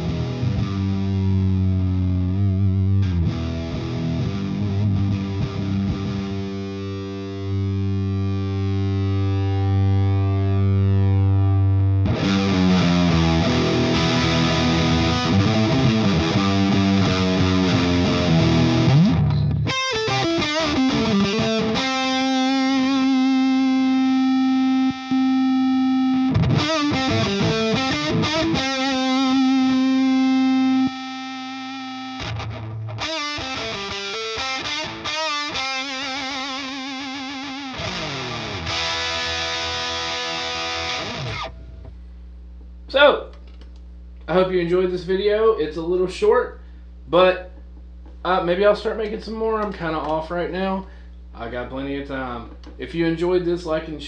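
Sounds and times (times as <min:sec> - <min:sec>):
fuzz electric guitar riffs: 0:00.0 - 0:42.0.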